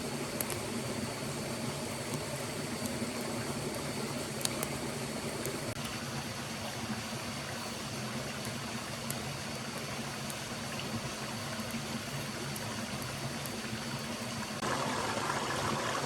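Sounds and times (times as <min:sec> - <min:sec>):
stream water flowing: 0:14.6 - 0:16.0.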